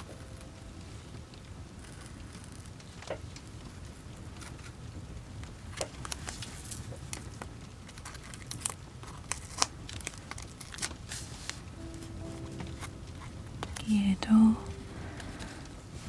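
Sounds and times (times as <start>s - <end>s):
paper and tape crinkling: 5.7s - 13.0s.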